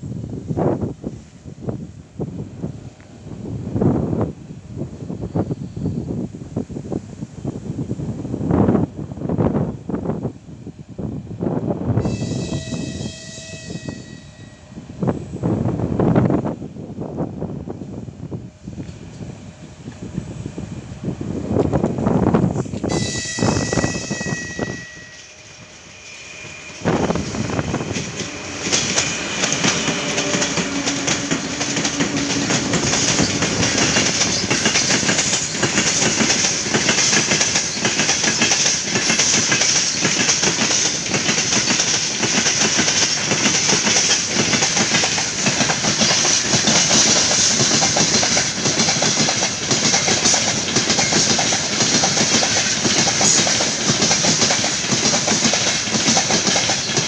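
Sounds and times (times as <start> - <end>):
steady rush: 14.6 - 57.0
train wheels clattering over joints: 27.1 - 57.0.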